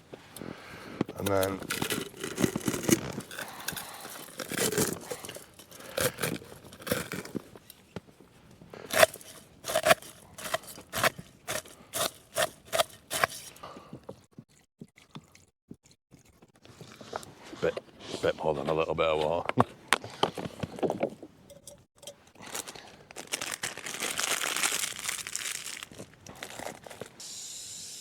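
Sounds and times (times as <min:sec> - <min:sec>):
plastic packaging crinkling: 0:01.1 - 0:07.7, 0:08.9 - 0:13.6, 0:22.4 - 0:27.2.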